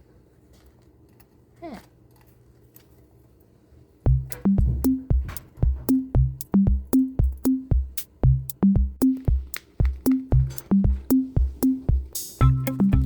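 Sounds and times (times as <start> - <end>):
electronic music with drum machine: 4.1 - 13.0.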